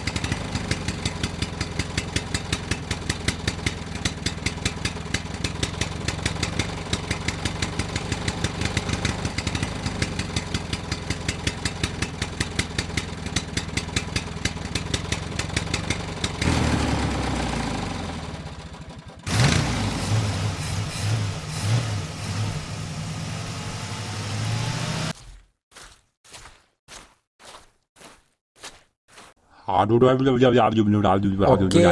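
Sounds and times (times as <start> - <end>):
tractor engine idling: 0.0 - 25.1.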